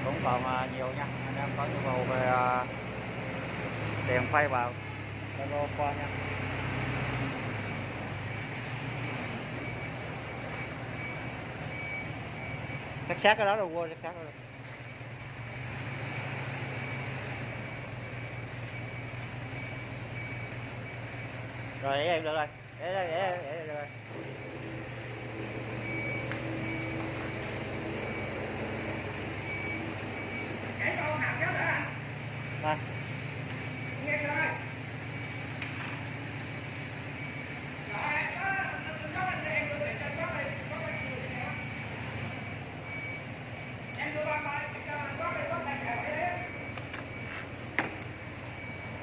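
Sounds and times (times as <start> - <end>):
engine droning: 0.0 - 49.0.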